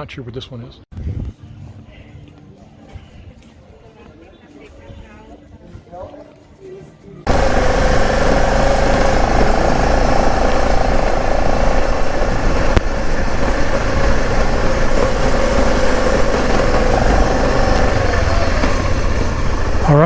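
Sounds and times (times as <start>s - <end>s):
motorcycle engine running: 7.3s - 20.0s.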